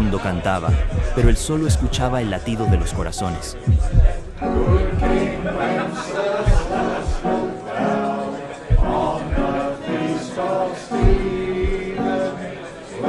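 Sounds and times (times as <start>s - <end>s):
deep heartbeat thumps: 0.0s - 5.6s, 6.4s - 7.4s, 8.7s - 9.6s, 11.0s - 12.0s
group of people singing: 2.5s - 13.0s.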